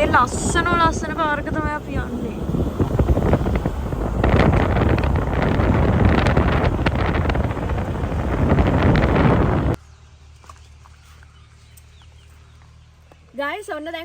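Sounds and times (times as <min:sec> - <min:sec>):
wind buffeting microphone: 0:00.0 - 0:09.8
moving vehicle rumble: 0:00.0 - 0:14.0.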